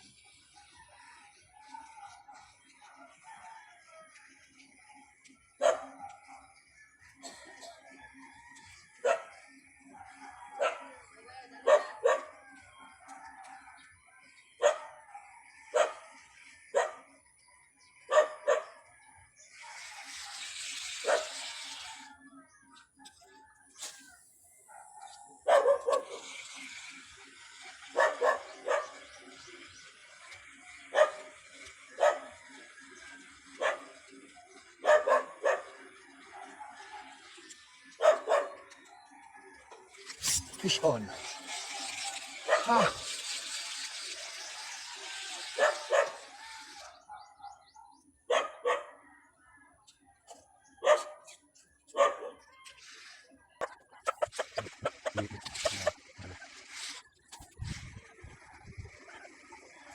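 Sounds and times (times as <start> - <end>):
dog barking: 5.6 - 6.5, 9.0 - 9.4, 10.0 - 11.0, 11.6 - 12.4, 14.6 - 16.1, 16.7 - 17.1, 18.1 - 18.8, 24.7 - 26.2, 27.9 - 29.1, 30.9 - 32.4, 33.6 - 34.0, 34.8 - 37.2, 38.0 - 39.4, 42.5 - 43.0, 45.6 - 46.4, 47.1 - 49.1, 50.8 - 51.3, 51.9 - 52.4.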